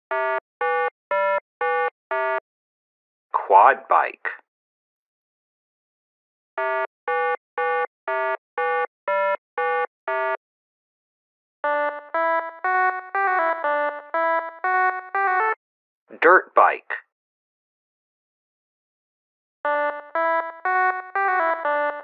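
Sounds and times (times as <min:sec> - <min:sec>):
synthesizer ringtone melody: 0:06.6 - 0:10.4, 0:11.6 - 0:15.6, 0:19.7 - 0:22.0.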